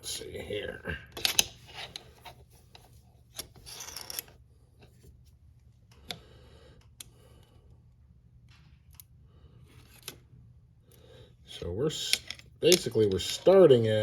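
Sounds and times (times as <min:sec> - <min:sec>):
chain scraping: 0:03.5 - 0:04.3.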